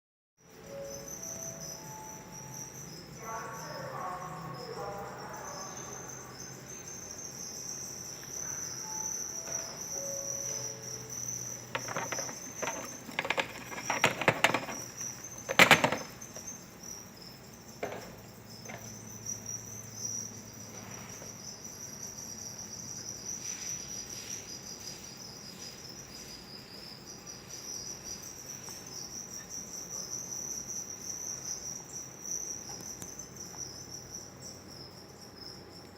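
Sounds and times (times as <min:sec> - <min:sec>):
crickets chirping: 0:00.4 - 0:35.9
rustling knocks: 0:11.7 - 0:16.5.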